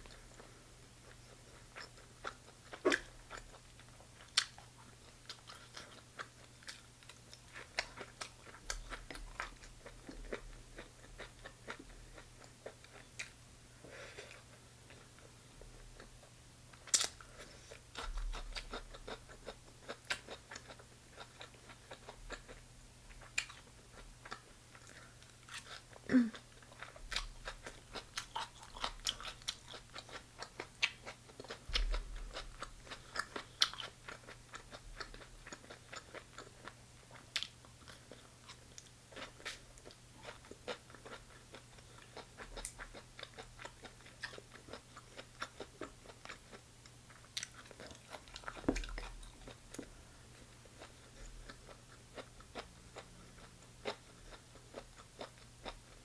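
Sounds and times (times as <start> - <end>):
crunchy chewing: 16.7 - 56.0.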